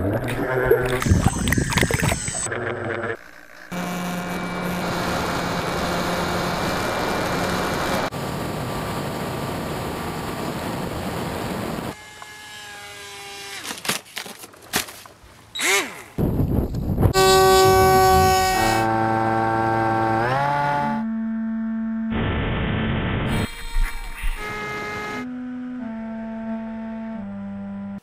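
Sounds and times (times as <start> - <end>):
remote-control model motor whine: 3.2 - 8.1, 11.2 - 13.8, 15.6 - 16.2, 17.2 - 21.0, 23.3 - 25.2.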